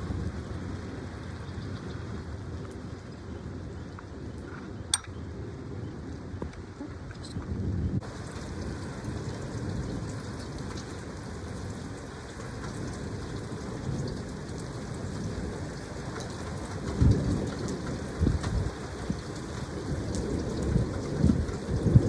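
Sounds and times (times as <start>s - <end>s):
steady rain: 0.0s - 4.8s, 5.4s - 22.0s
low rumbling thunder: 7.6s - 22.0s.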